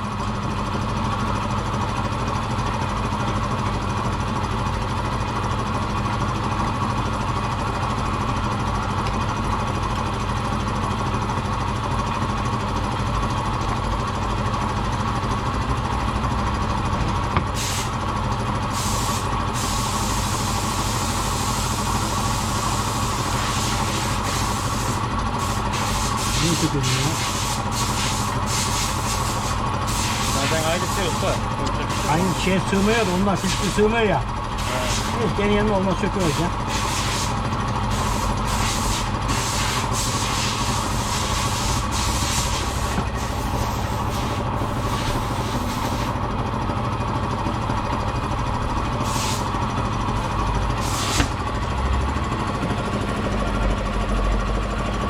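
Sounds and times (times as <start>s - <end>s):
machine humming with hiss: 16.9s - 46.2s, 48.7s - 53.7s.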